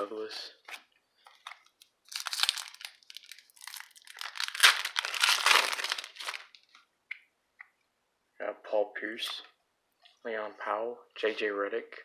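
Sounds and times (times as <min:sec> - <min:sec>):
wrapper crinkling and tearing: 0:00.7 - 0:06.8.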